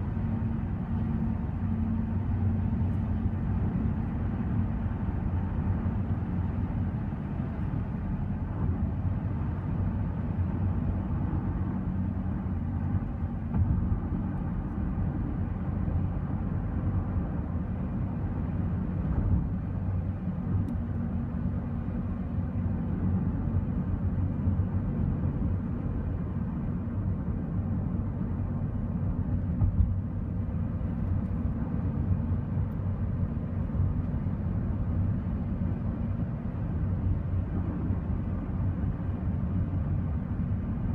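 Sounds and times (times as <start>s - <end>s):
car driving at highway speed: 0.0s - 40.9s.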